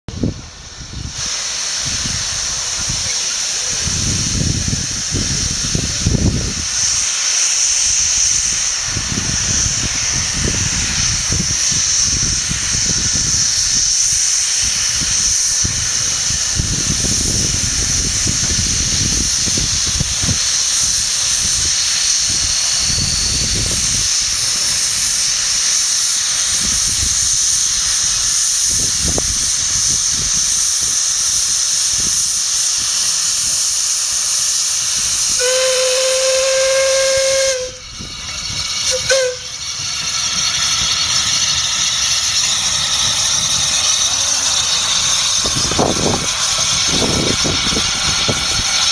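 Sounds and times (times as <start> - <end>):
steam hissing: 0.1 - 48.9.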